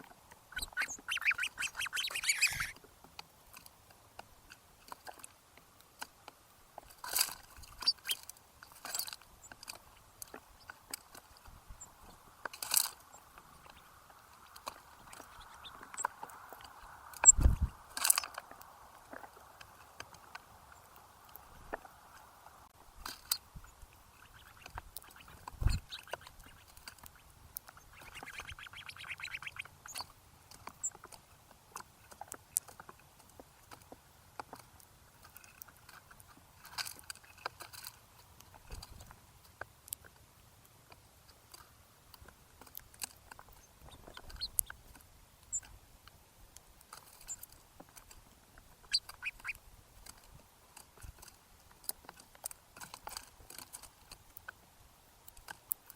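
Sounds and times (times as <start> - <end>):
short high bird chirps: 0.5 - 2.7, 27.8 - 30.1
rapid buzzy bird call: 0.5 - 2.8, 24.2 - 30.1.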